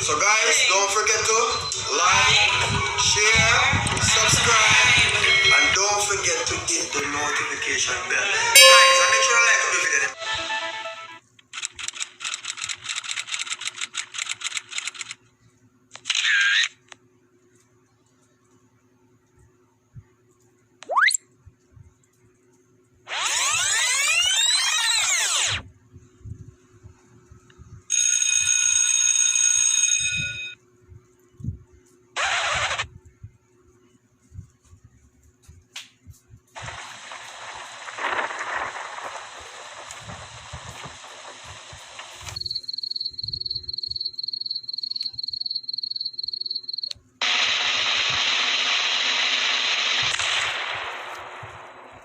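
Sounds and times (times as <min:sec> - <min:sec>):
bell-like ring: 0:08.6 - 0:10.4
loud burst of noise: 0:32.2 - 0:32.9, 0:36.6 - 0:42.7, 0:47.2 - 0:52.0
hiss of noise: 0:36.5 - 0:42.4, 0:47.2 - 0:52.0
high pulsing beeps: 0:42.3 - 0:46.9.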